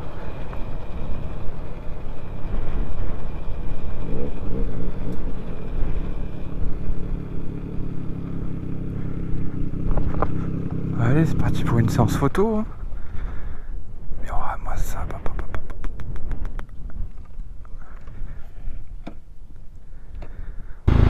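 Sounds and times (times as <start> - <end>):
motorcycle engine riding: 0.0 - 14.1, 15.3 - 21.0
wind rumble on camera: 12.5 - 20.5.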